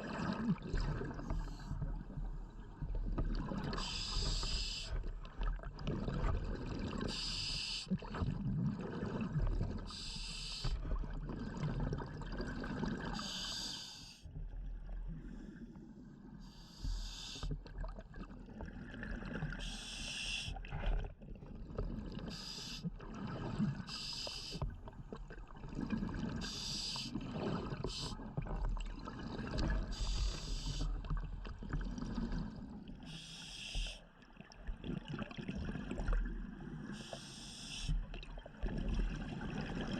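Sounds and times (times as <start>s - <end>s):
bubbling of exhaled air: 0.0s - 13.3s, 17.4s - 34.0s, 34.6s - 39.9s
regulator breathing hiss: 3.8s - 4.9s, 7.1s - 7.9s, 9.9s - 10.7s, 13.2s - 14.2s, 16.6s - 17.5s, 19.6s - 20.6s, 22.3s - 22.9s, 23.9s - 24.6s, 26.4s - 27.2s, 29.9s - 30.9s, 33.1s - 34.0s, 37.0s - 38.0s.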